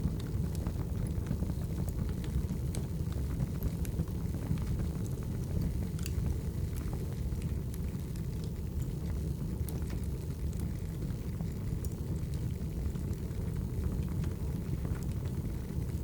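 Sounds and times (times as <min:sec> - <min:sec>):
firewood crackling and popping: 0:00.0 - 0:16.0
wood fire rumbling: 0:00.0 - 0:16.0.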